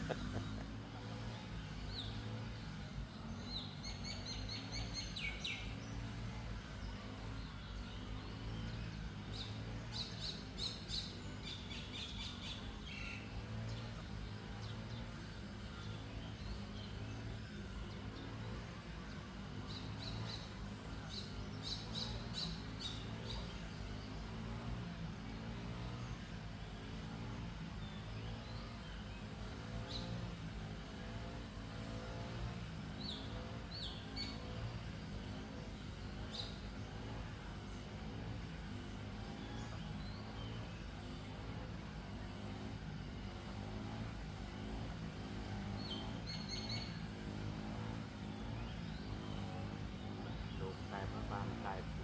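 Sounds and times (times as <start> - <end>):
low background hum: 0.0 - 5.7.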